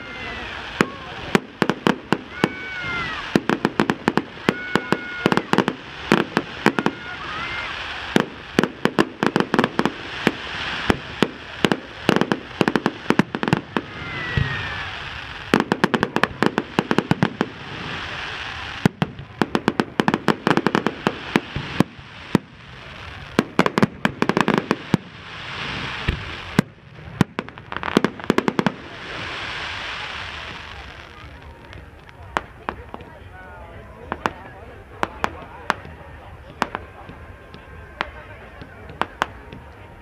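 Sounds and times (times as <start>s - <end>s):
deep firework thumps: 25.7s - 27.7s
rapid firework pops: 25.7s - 28.8s, 34.1s - 39.7s
firework shells crackling: 35.0s - 39.9s.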